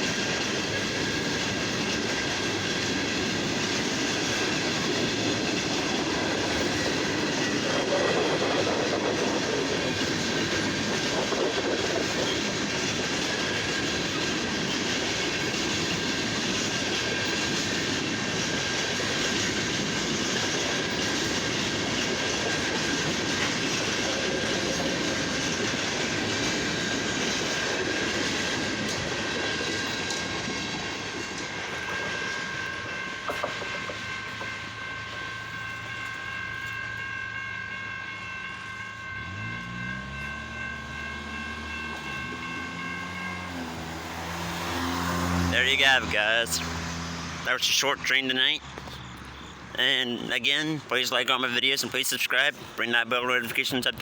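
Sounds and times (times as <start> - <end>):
train wheels clacking on rail joints: 0.0 - 37.0
high ringing from wheels and rails: 0.0 - 54.0.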